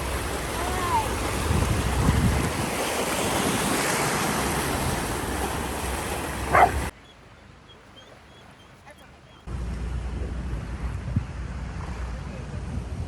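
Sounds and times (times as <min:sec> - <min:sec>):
wind buffeting microphone: 0:00.0 - 0:06.9
wind and water rushing: 0:00.0 - 0:13.0.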